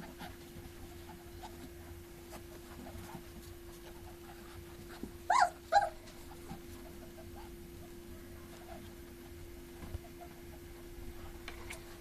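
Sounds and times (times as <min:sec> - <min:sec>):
puppies squeaking: 0:05.3 - 0:06.1
puppy yelping: 0:05.3 - 0:06.1.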